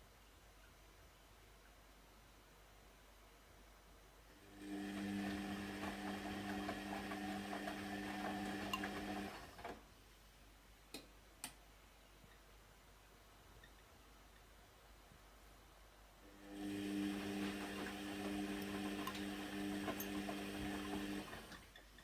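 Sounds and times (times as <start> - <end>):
washing machine humming: 4.4 - 9.7, 16.3 - 21.8.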